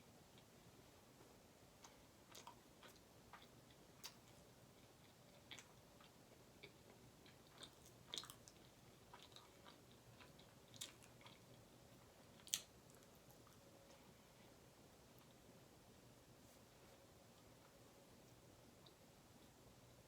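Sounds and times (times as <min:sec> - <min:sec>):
person chewing food: 0:01.8 - 0:13.6.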